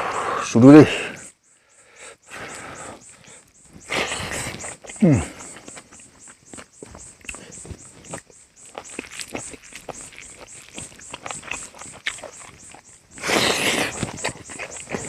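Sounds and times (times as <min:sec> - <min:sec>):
wet chewing and mouth smacks: 0:03.3 - 0:15.0
loud slurp or crunch: 0:08.8 - 0:15.0.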